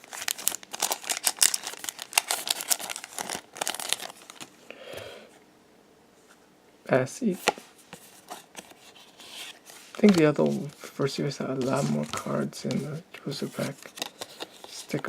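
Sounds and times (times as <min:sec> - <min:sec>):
foil wrapper tearing and crinkling: 0:00.0 - 0:04.5.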